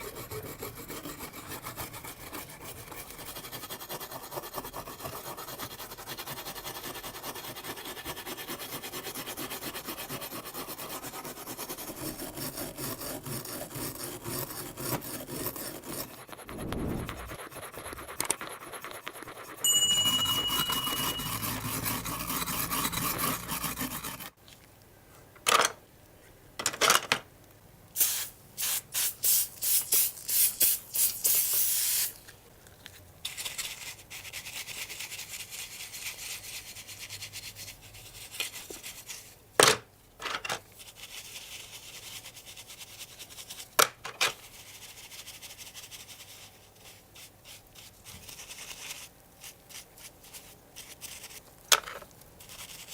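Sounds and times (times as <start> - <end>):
abrasive rubbing and scraping: 15.9 - 18.8.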